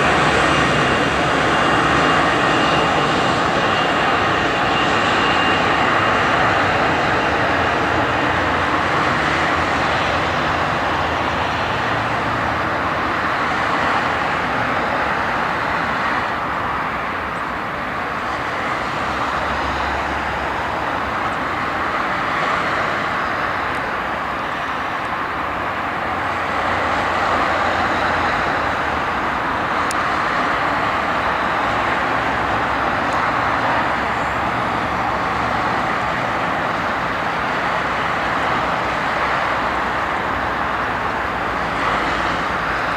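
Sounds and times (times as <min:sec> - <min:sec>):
jet engines at takeoff power: 0:00.0 - 0:42.9.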